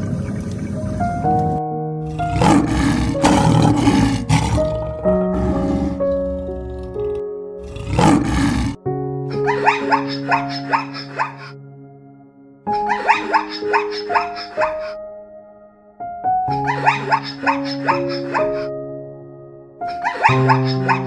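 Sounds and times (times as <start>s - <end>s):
background music of sustained notes: 0.0s - 21.0s
animal roaring: 2.0s - 8.8s.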